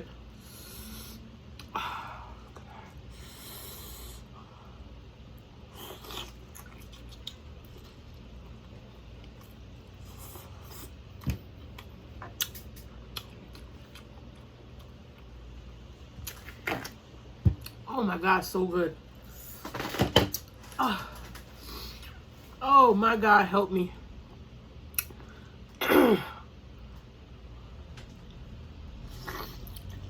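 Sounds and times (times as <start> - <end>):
low steady hum: 0.0 - 30.0
person chewing: 5.4 - 15.4, 16.2 - 16.8, 29.1 - 30.0.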